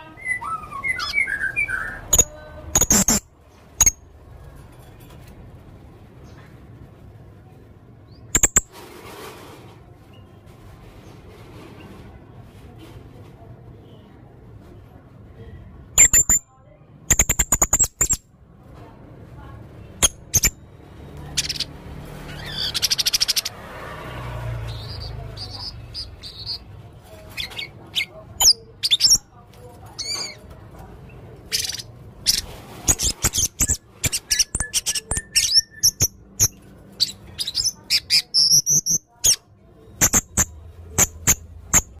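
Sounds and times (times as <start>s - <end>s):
parrot chirping and whistling: 0.2s - 3.2s, 8.4s - 8.6s, 31.5s - 39.0s
parrot fast trill: 0.3s - 3.2s, 8.4s - 8.7s, 17.1s - 18.2s, 21.3s - 23.6s.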